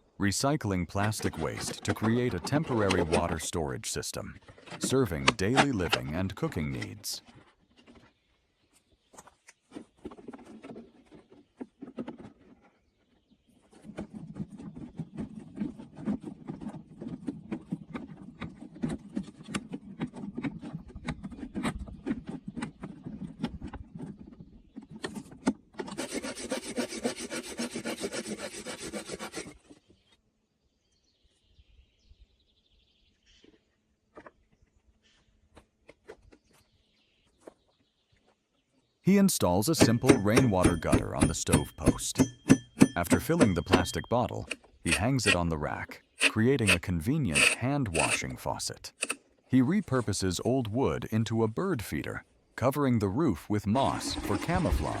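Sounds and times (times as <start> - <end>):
hand sawing or rasping wood: 25.8 - 29.7, 46.2 - 48.2.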